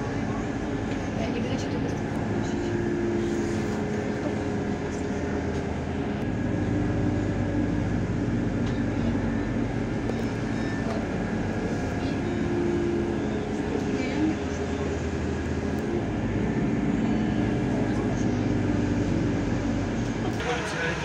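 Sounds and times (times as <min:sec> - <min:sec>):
diesel engine drone: 0:00.0 - 0:21.0
wheel-on-rail rumble: 0:00.0 - 0:21.0.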